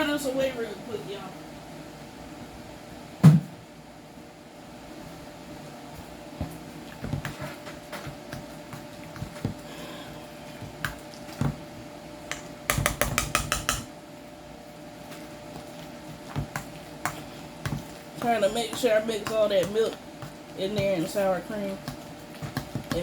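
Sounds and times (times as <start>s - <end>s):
utensil knocking against a pot: 12.3s - 13.9s.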